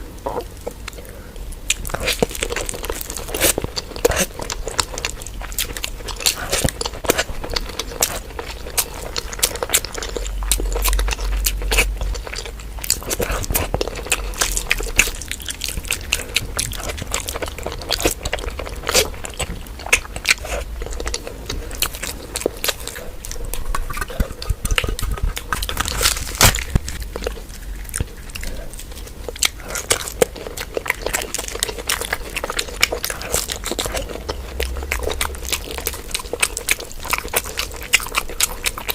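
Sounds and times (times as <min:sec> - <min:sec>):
person chewing and biting food: 0:00.2 - 0:38.9
mouth clicks and smacks: 0:18.8 - 0:38.9.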